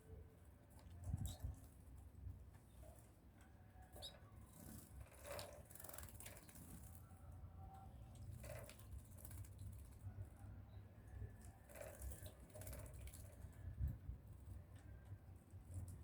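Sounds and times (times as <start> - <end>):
birds splashing in water bath: 4.0 - 7.1, 8.1 - 10.0, 11.4 - 13.7.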